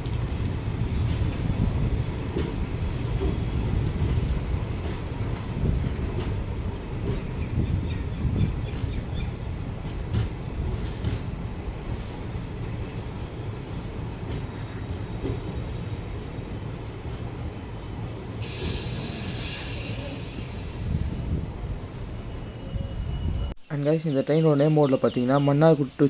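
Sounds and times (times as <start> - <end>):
train coach rumbling on rails: 0.0 - 26.0
hiss: 18.4 - 21.2.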